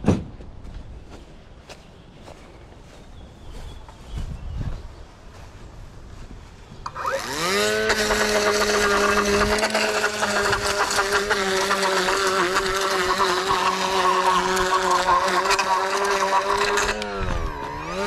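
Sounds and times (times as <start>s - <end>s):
lawn edger engine revving: 6.8s - 18.0s.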